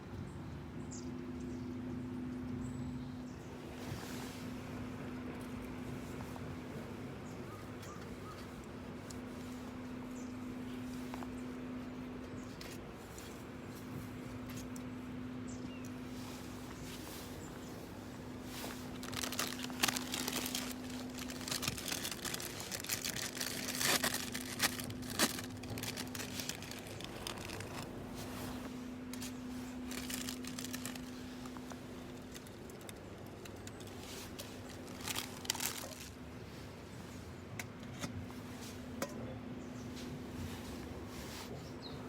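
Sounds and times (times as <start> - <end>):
wrapping crinkling and tearing: 18.3 - 36.2.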